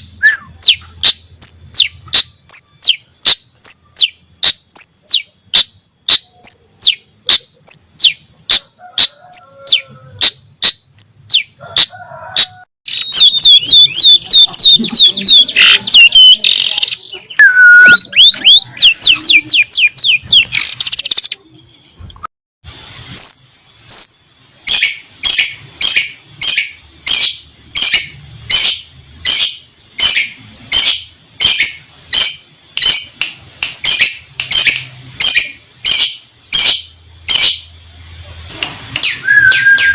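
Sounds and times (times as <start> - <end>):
shrike singing sharp high calls: 12.9 - 21.3.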